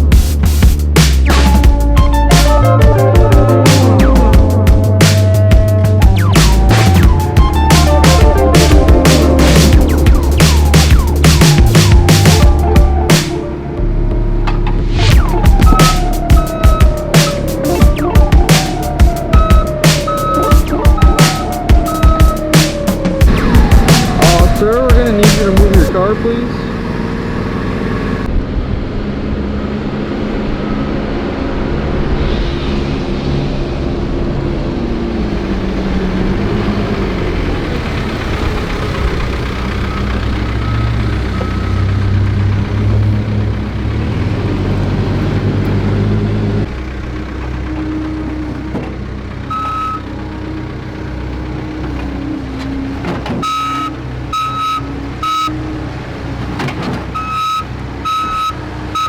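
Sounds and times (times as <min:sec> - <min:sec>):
construction equipment engine: 0:00.0 - 0:32.0, 0:33.1 - 0:59.0
reversing alarm beeping: 0:15.1 - 0:28.3, 0:39.7 - 0:42.2, 0:49.5 - 0:50.2, 0:53.2 - 0:55.6, 0:57.1 - 0:59.0.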